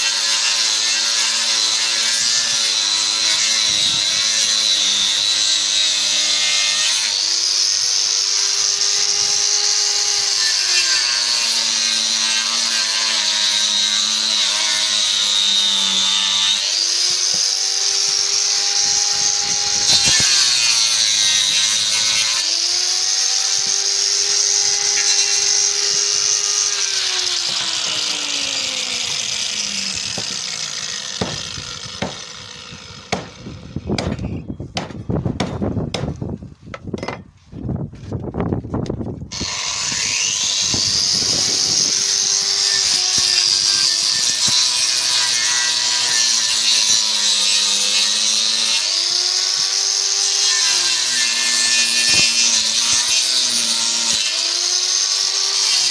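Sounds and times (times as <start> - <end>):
power saw cutting wood: 0.0 - 36.3, 39.3 - 55.9
sharp knocks: 31.2 - 32.2, 33.1 - 33.4, 34.0 - 37.3.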